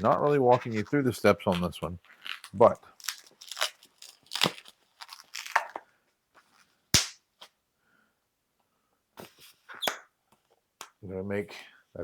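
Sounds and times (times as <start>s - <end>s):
balloons rubbing and crinkling: 0.0s - 5.6s
balloon sharp snap: 7.0s - 7.2s.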